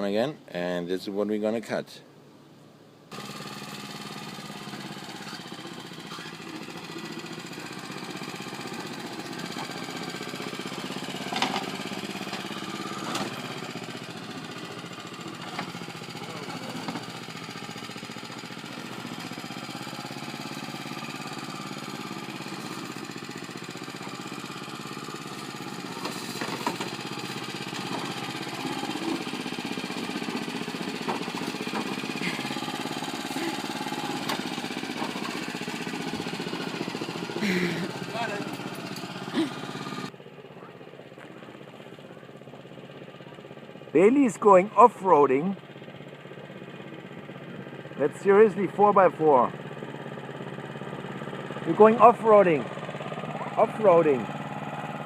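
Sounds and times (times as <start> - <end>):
lawn mower running: 3.1 - 55.0.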